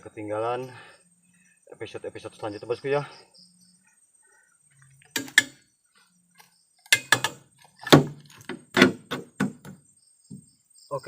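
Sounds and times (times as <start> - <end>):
sharp knocks and thuds: 6.9 - 10.6.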